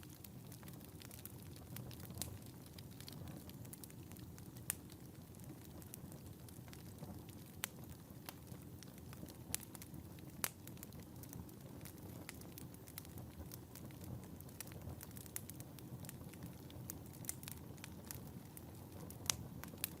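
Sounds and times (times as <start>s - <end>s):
fire crackling and popping: 0.0s - 20.0s
fire rumbling: 0.0s - 20.0s.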